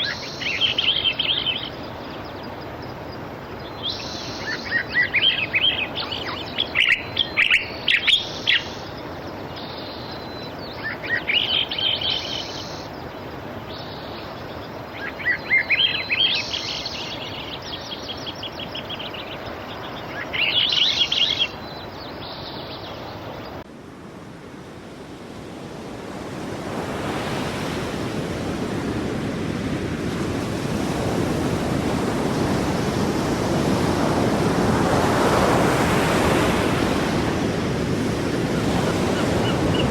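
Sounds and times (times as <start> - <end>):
songbird chirps and trills: 0.0 - 23.7
sea waves: 0.0 - 39.9.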